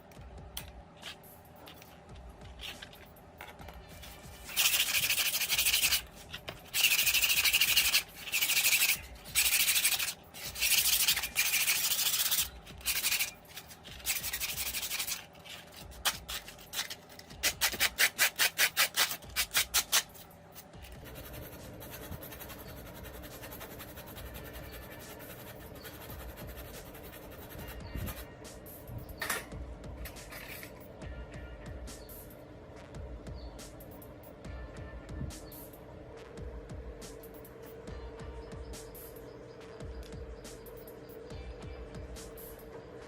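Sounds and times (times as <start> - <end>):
hand sanding strokes: 4.0 - 20.1, 21.0 - 28.2.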